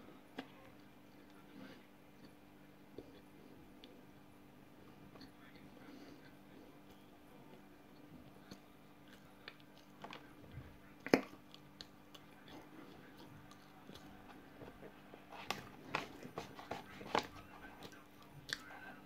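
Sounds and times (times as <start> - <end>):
chewing clicks and crunches: 11.0 - 14.2, 17.2 - 18.8.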